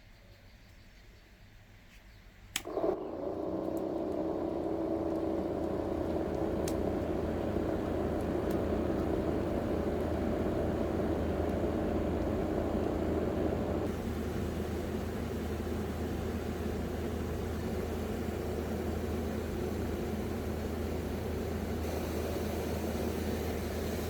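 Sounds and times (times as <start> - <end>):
switch click: 2.5 - 2.8
small electric motor whirring: 2.6 - 10.3.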